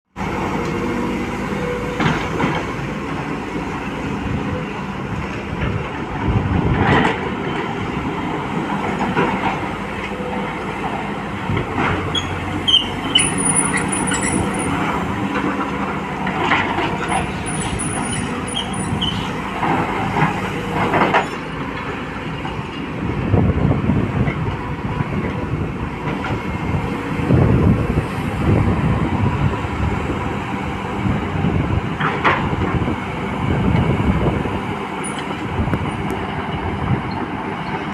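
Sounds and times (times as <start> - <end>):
excavator diesel engine: 0.1 - 37.9
high metallic squealing: 12.0 - 14.8, 17.0 - 19.4.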